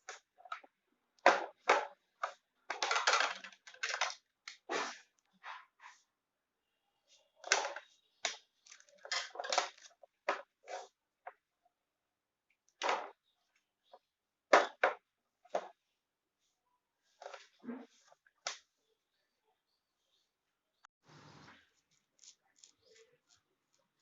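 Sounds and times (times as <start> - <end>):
packaging clicks and knocks: 1.3 - 4.3.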